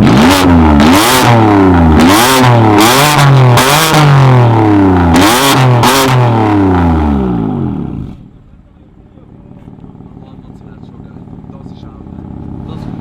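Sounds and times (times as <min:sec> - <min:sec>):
car engine revving with crackle: 0:00.0 - 0:08.4.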